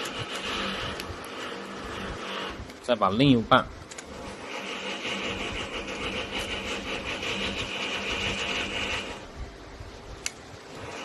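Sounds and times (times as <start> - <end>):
plastic parts scraping and clicking: 3.8 - 9.0.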